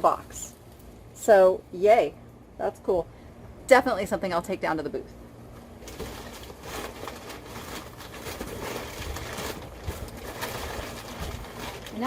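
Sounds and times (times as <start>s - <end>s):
cardboard being handled: 5.8s - 12.0s
newspaper crinkling: 5.8s - 12.0s.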